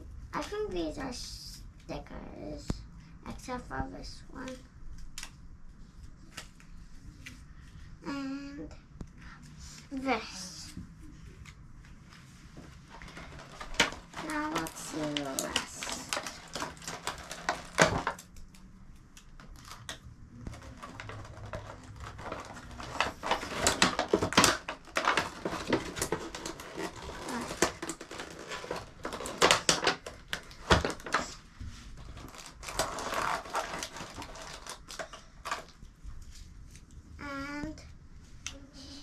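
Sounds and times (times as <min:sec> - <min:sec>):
packaging rustling and crinkling: 0:11.3 - 0:36.9.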